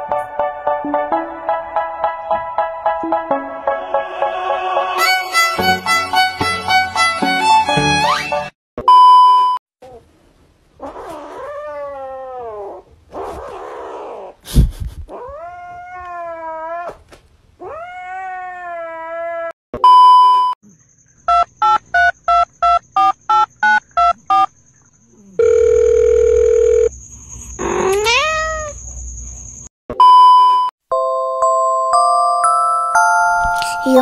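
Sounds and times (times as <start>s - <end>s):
cat meowing and yowling: 10.8s - 12.8s, 15.1s - 17.0s, 17.6s - 19.6s, 27.8s - 28.8s
electronic test-tone beep: 19.8s - 20.6s, 30.0s - 30.7s
short electronic beeps: 30.0s - 30.7s.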